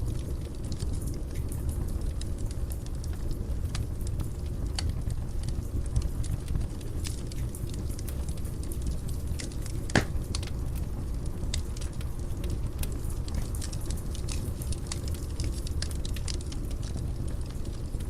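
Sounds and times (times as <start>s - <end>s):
fire crackling: 0.0s - 18.0s
loud pop from fire: 9.9s - 10.5s.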